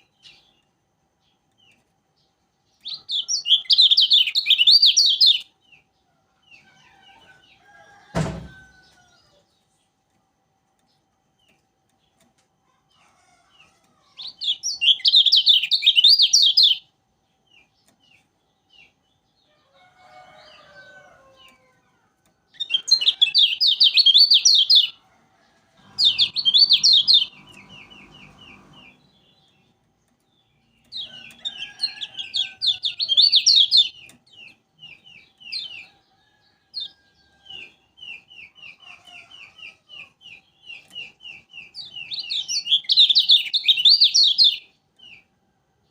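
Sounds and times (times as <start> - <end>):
bird twittering: 14.2 - 16.8, 22.6 - 25.0, 25.9 - 29.0.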